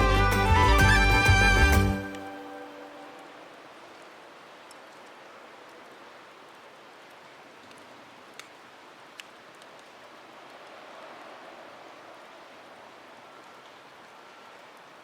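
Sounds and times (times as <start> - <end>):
wood fire hissing and crackling: 4.0 - 15.0.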